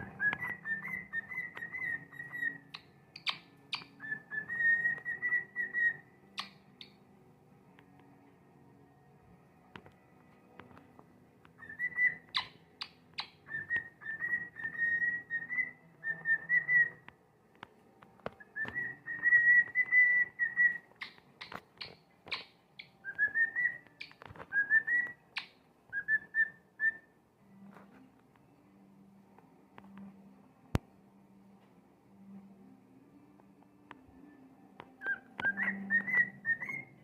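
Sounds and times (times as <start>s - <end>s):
cockatiel whistling: 0.0s - 7.0s, 11.6s - 17.1s, 18.4s - 27.1s, 35.0s - 37.0s.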